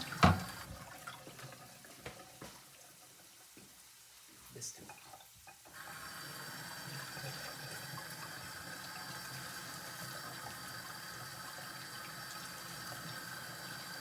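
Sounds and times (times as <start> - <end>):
tap running into a sink: 0.0 - 1.0.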